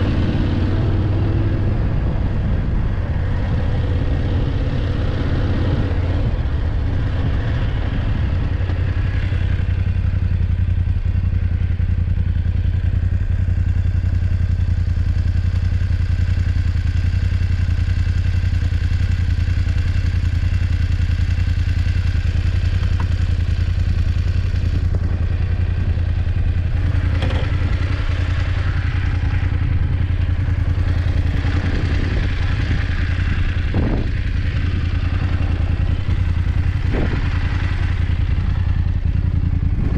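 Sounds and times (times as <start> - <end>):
motorcycle engine running: 0.0 - 39.9
motorcycle knocks and rattles: 21.9 - 39.9.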